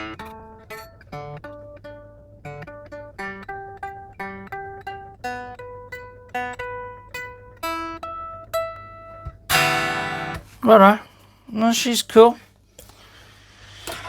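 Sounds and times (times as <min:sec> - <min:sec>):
clean electric guitar notes: 0:09.2 - 0:10.5.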